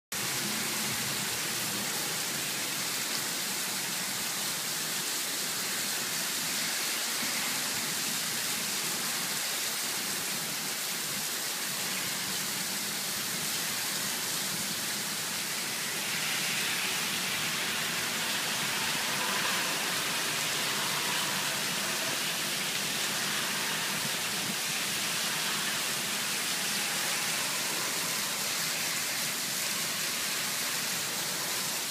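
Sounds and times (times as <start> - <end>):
heavy rain on pavement and cars: 0.1 - 31.9.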